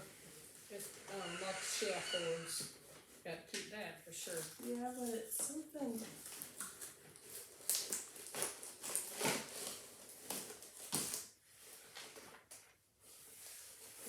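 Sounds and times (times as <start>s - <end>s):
packaging rustling: 4.2s - 14.0s.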